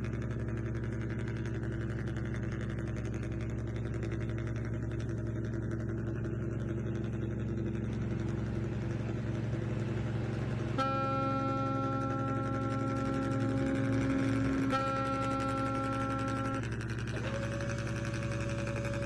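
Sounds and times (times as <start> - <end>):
low engine hum: 0.0 - 19.0
horn blast: 7.9 - 19.0.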